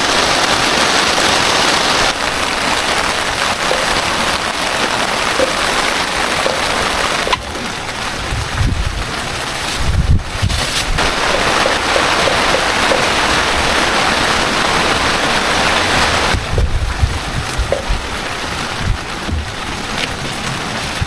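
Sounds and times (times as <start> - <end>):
heavy rain hissing: 0.0 - 21.0
low thumps: 2.8 - 13.8, 15.9 - 21.0.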